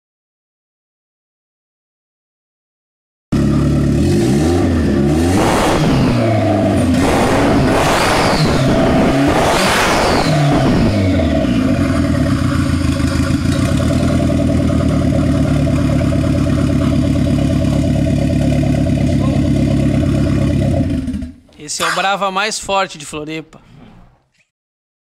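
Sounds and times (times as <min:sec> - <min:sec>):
car engine idling and revving: 0:03.4 - 0:21.4.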